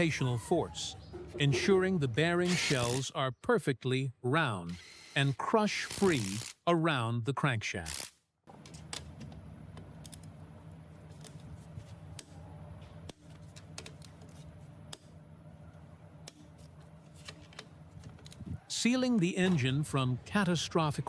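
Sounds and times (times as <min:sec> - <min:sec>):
steady low hum: 0:08.5 - 0:21.0.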